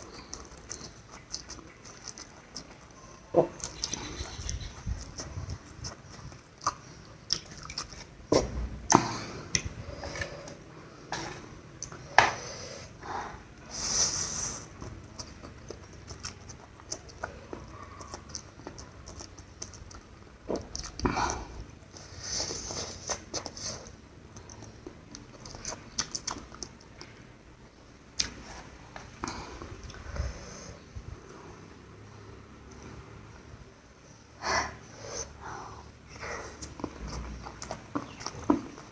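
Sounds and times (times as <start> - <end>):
person chewing and slurping noodles: 0.0 - 12.4, 13.7 - 27.0, 35.2 - 38.9.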